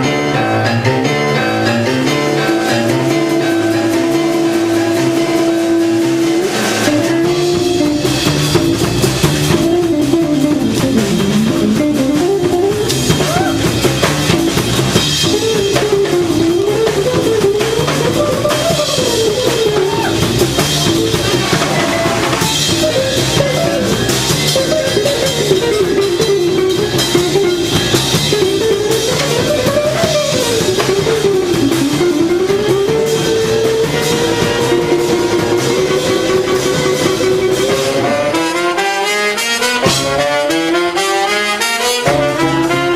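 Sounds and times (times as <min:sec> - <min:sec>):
bending melody line: 0:00.0 - 0:42.9
drum kit: 0:00.0 - 0:42.9
guitar: 0:00.0 - 0:42.9
jazz band playing: 0:00.0 - 0:42.9.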